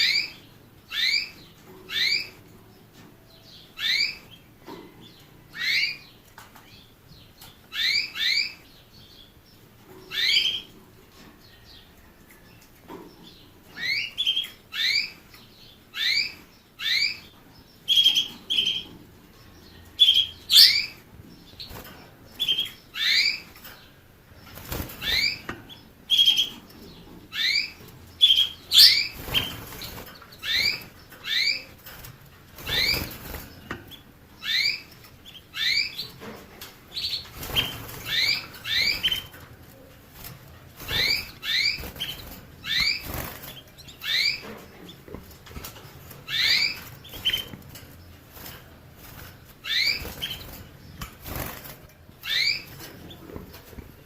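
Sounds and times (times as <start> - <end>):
finch chirping: 0.0 - 11.9, 12.5 - 53.9
rustling: 26.4 - 54.0.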